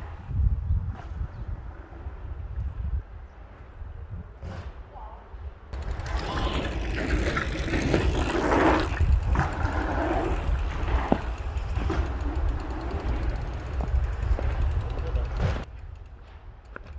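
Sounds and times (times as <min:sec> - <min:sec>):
wind rumble on microphone: 0:00.0 - 0:16.9
bicycle rattling: 0:05.8 - 0:16.9.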